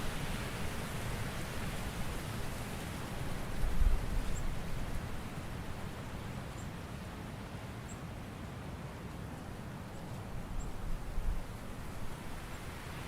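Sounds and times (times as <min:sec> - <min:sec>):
wind and rustling leaves: 0:00.0 - 0:13.0.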